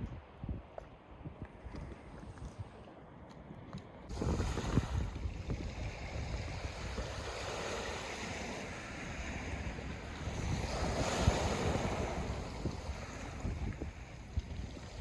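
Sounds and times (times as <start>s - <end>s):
wind buffeting microphone: 0.0s - 15.0s
sea waves washing on shore: 4.1s - 15.0s.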